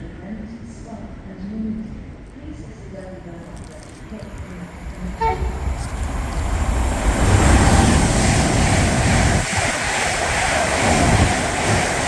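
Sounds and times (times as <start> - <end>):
wheel-on-rail rumble: 3.0 - 12.0
train rushing past: 3.5 - 12.0.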